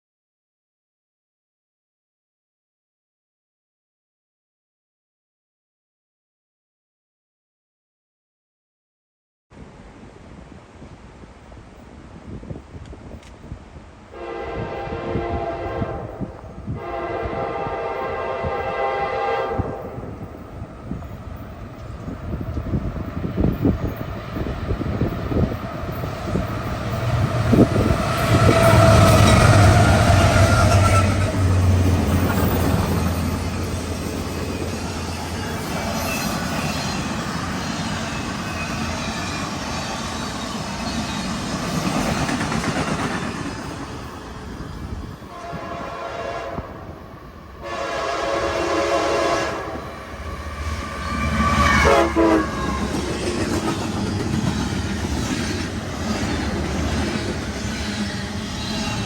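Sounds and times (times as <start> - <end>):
locomotive horn blasts: 14.1 - 20.1, 45.3 - 52.8
rail cars clattering: 14.2 - 59.0
diesel locomotive engine rumble: 14.4 - 59.0.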